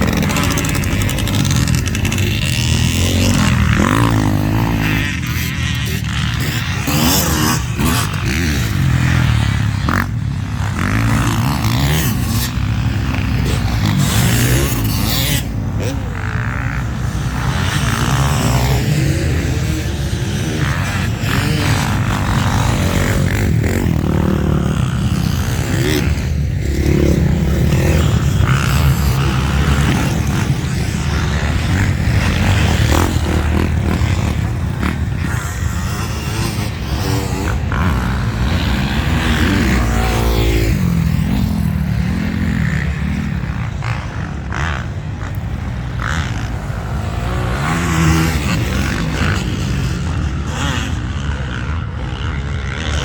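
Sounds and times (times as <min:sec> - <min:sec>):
motocross bike engine running: 0:00.0 - 0:53.0.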